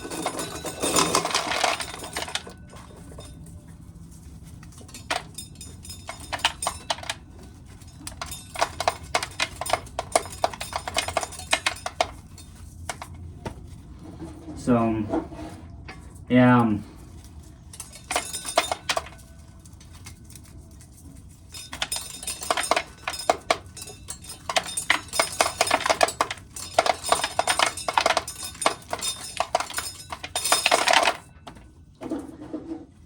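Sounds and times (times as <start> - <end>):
corn kernels rattling off cob: 0.0 - 3.4, 17.2 - 31.6.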